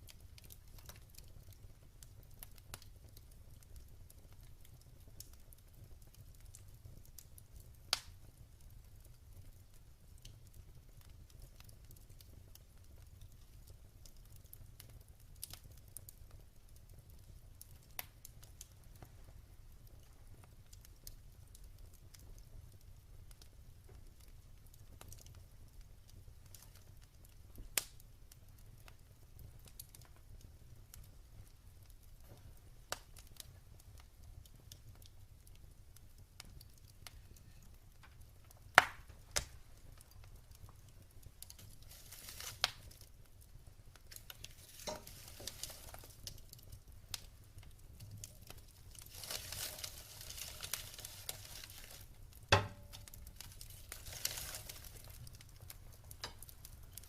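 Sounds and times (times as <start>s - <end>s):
fire crackling and popping: 0.0s - 57.0s
fire hissing: 38.6s - 57.0s.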